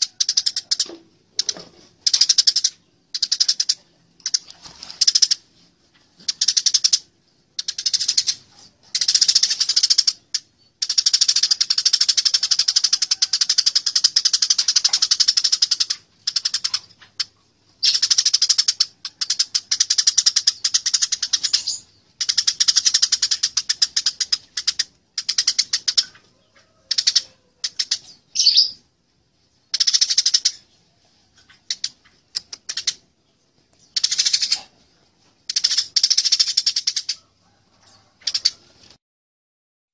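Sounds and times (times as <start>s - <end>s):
sparrows chirping harshly: 6.2s - 28.9s, 29.5s - 37.2s.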